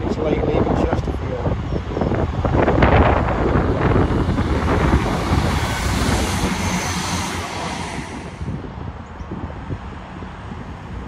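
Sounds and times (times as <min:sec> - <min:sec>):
diesel train engine rumbling: 0:00.0 - 0:11.0
wind buffeting microphone: 0:00.0 - 0:11.0
wheels hissing on track: 0:02.3 - 0:09.0.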